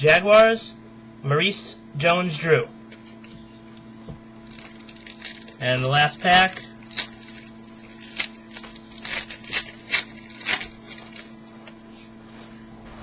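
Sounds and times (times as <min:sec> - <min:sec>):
low electrical hum: 0:00.0 - 0:13.0
card pack crinkling and ripping: 0:04.4 - 0:11.7.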